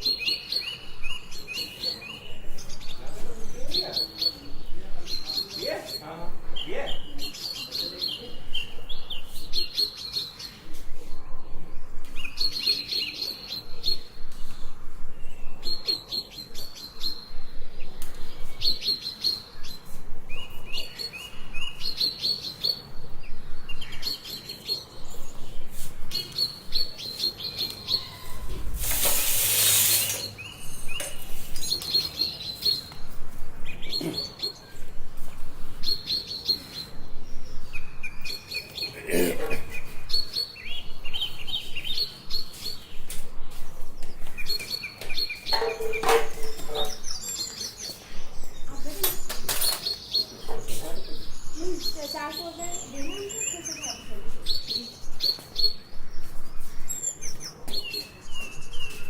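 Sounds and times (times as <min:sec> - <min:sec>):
small bird chirping: 0:12.1 - 0:33.1
brief burst of noise: 0:28.4 - 0:30.4.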